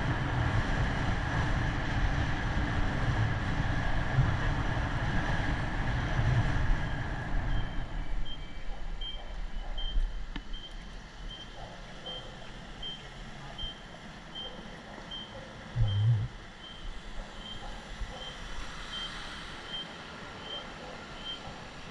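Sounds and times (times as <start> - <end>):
road and wind noise: 0.0 - 21.9
reversing alarm beeping: 6.9 - 16.8, 18.2 - 21.4.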